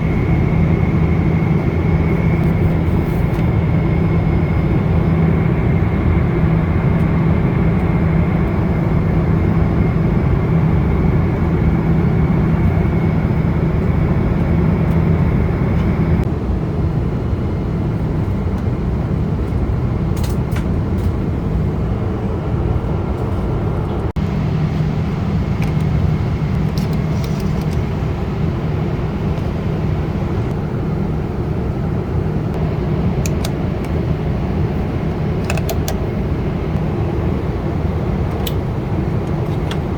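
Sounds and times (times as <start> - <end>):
faint high whine: 0.0 - 16.2
airliner cabin drone: 0.0 - 39.9.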